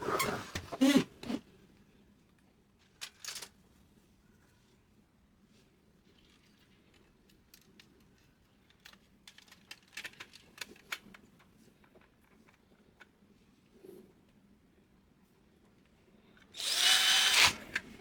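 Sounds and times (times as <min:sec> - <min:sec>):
plastic parts clicking and tapping: 0:07.3 - 0:12.6.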